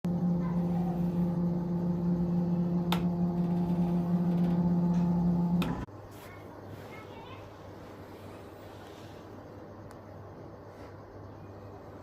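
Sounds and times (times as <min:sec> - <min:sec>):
cnc router motor hum: 0:00.1 - 0:05.9.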